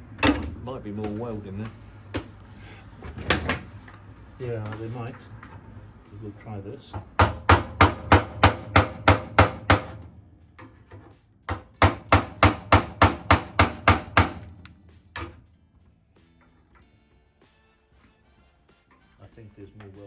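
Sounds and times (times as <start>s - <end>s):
hammer striking steel fender: 7.0s - 10.1s, 11.5s - 15.4s.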